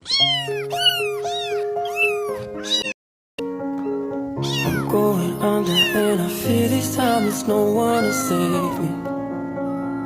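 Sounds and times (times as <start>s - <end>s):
kitten meowing: 0.0s - 3.0s, 3.8s - 4.9s, 5.6s - 6.1s, 7.0s - 10.0s
music with held notes: 0.3s - 10.0s.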